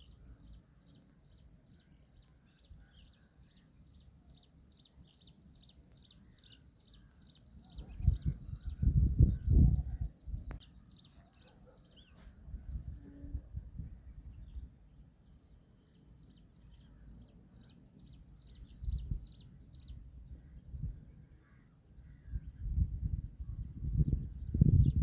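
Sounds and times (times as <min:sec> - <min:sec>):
wind gusts on microphone: 0:07.8 - 0:10.6, 0:12.3 - 0:14.7, 0:18.7 - 0:21.2, 0:22.2 - 0:25.0.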